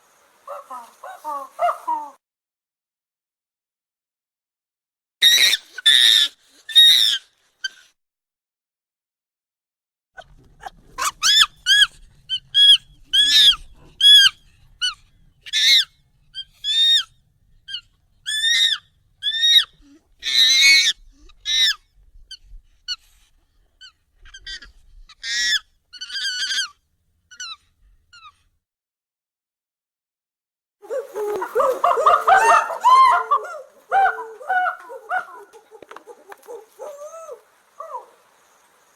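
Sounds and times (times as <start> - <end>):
high monkey calls: 0.5 - 2.2, 5.2 - 7.8, 10.6 - 21.8, 23.8 - 28.4, 30.8 - 38.3.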